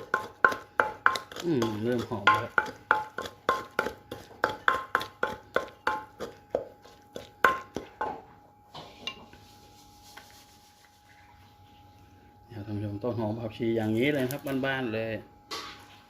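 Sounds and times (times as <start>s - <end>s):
pestle knocking in a mortar: 0.0s - 8.4s.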